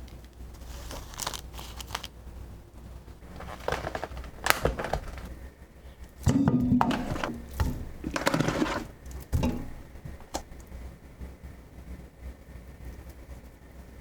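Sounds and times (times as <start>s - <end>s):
crinkling handling sounds: 0.0s - 10.7s.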